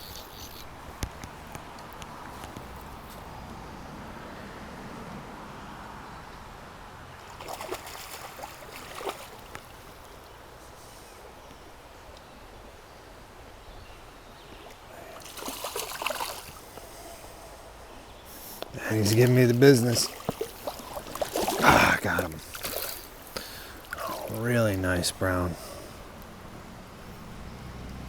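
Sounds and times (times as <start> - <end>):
river water trickling: 0.0 - 28.0
water splashing: 7.2 - 10.4, 14.6 - 17.7, 18.3 - 28.0.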